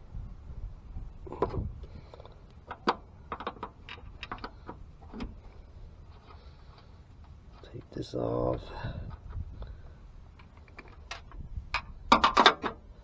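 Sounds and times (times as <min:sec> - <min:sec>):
wind rumble on microphone: 0:00.0 - 0:02.2, 0:08.3 - 0:13.0
small clicks and knocks: 0:01.3 - 0:05.5, 0:10.3 - 0:12.8.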